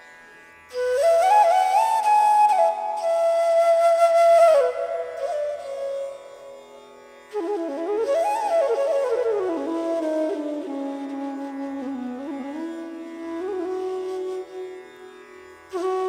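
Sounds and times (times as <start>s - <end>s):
flute melody: 0.7s - 14.9s, 15.7s - 16.0s.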